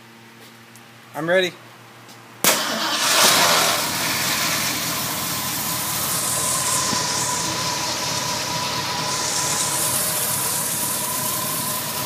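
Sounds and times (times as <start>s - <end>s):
car engine idling: 2.5s - 12.0s
thin steady whine: 3.3s - 12.0s.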